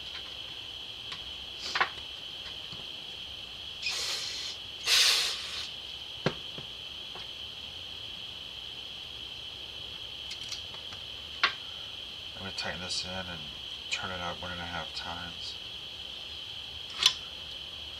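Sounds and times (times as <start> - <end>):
short hissing bursts: 3.8 - 5.8.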